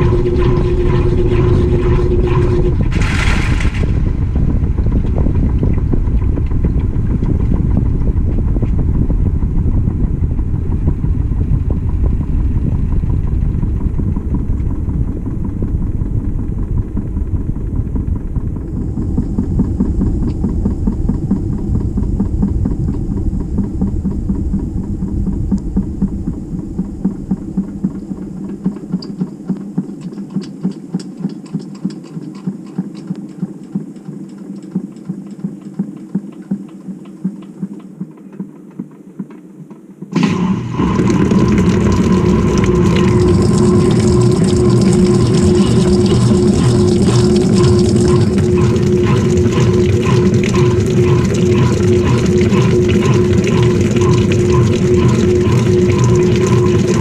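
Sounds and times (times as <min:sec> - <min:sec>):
faint high whine: 0:00.0 - 0:30.2
washing machine drum rumbling: 0:00.0 - 0:32.7, 0:40.0 - 0:57.0
regular throbbing pulse: 0:00.0 - 0:57.0.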